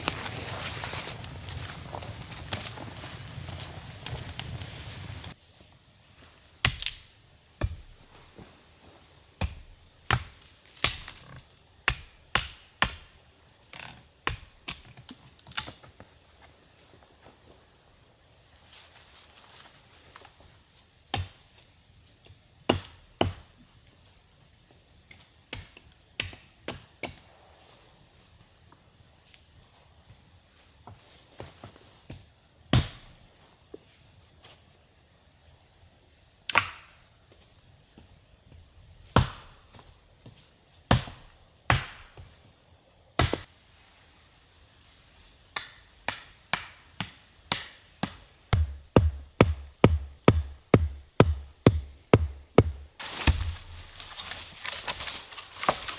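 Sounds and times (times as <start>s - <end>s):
hand tool knocking on wood: 48.5s - 54.0s.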